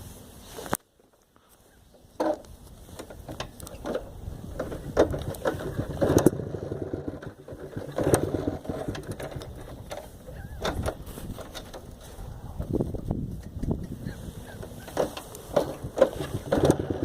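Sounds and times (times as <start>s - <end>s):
motorcycle engine running unevenly: 4.0s - 11.4s, 15.0s - 17.0s.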